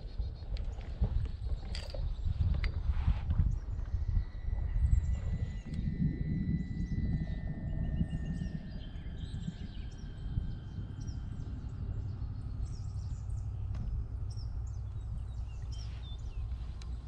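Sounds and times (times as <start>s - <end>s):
low steady rumble: 0.0s - 17.0s
birds chirping: 3.5s - 17.0s.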